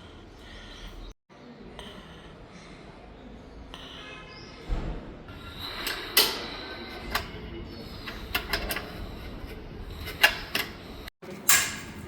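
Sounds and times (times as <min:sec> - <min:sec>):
clicks and knocks of tools: 0:05.6 - 0:12.0.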